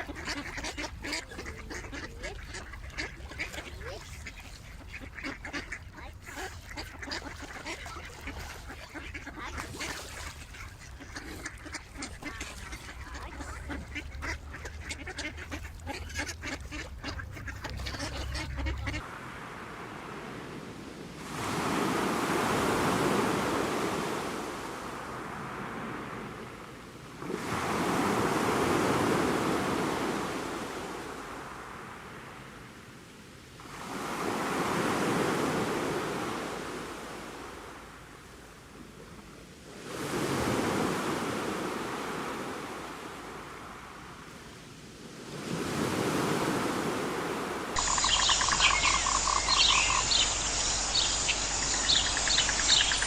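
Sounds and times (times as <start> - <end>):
ducks quacking: 0.0 - 19.0, 47.8 - 53.0
ocean waves breaking: 0.0 - 53.0.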